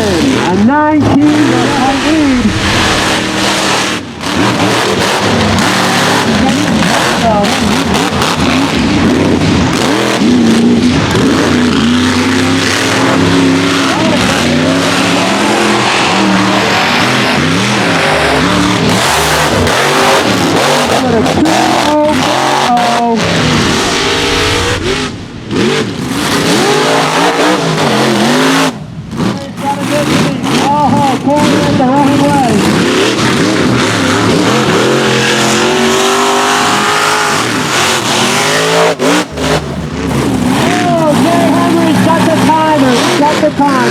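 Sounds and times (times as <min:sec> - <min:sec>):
steady noise: 0:00.0 - 0:08.4, 0:11.5 - 0:28.4
truck engine revving: 0:00.0 - 0:43.9.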